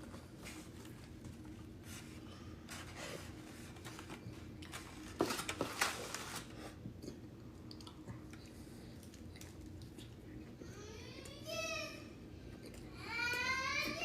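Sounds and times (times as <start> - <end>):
clicks and crinkly rustles: 0.0 - 6.7.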